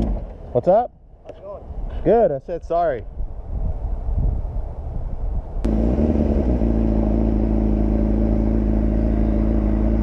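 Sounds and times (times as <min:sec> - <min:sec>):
motorcycle engine idling: 0:05.7 - 0:10.0.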